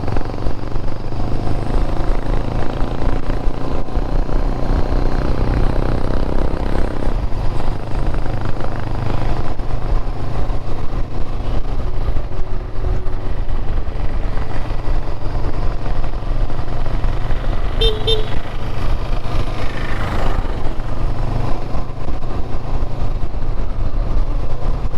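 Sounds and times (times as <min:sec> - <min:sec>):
motorcycle engine running: 0:00.0 - 0:24.9
higher-pitched engine note: 0:17.8 - 0:18.4.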